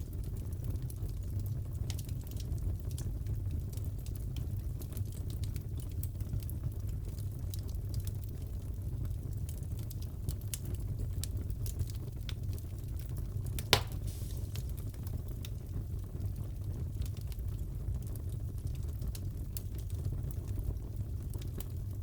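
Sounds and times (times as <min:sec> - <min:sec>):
fire crackling: 0:00.0 - 0:22.0
burning wood rumble: 0:10.5 - 0:22.0
wood popping and snapping: 0:13.6 - 0:14.7.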